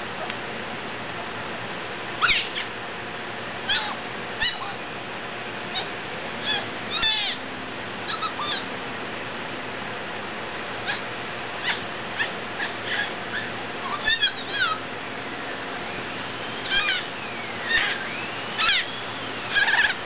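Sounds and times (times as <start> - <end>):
outdoor background hiss: 0.0 - 20.0
birds chirping: 2.2 - 2.8, 3.6 - 8.8, 10.5 - 20.0.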